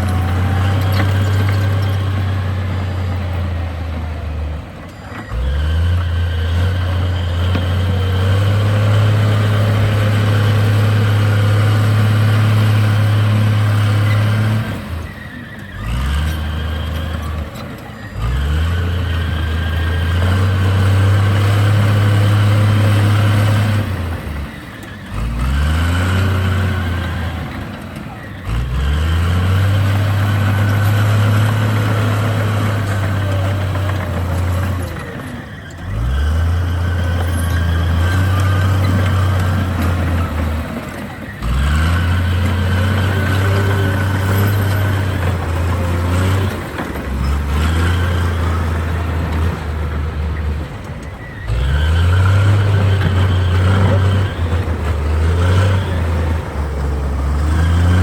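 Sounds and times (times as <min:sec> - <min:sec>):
bulldozer diesel engine revving: 0:00.0 - 0:58.0.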